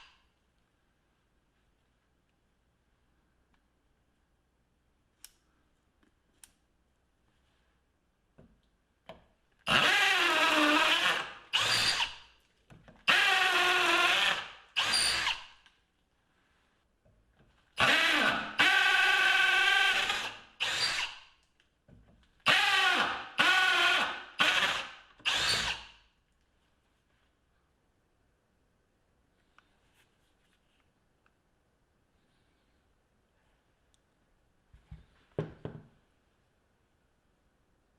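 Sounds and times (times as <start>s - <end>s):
cordless drill whining: 9.7s - 12.3s, 13.1s - 15.6s, 17.8s - 21.3s, 22.5s - 26.0s.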